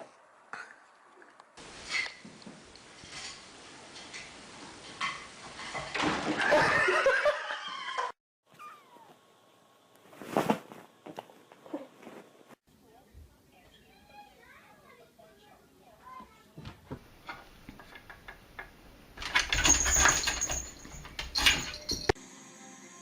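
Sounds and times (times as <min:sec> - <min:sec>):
cat yowling: 0:08.5 - 0:09.2.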